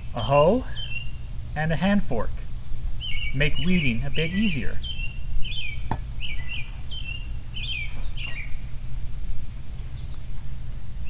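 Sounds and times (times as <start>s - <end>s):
small bird chirping: 0.0s - 1.3s, 2.4s - 8.8s.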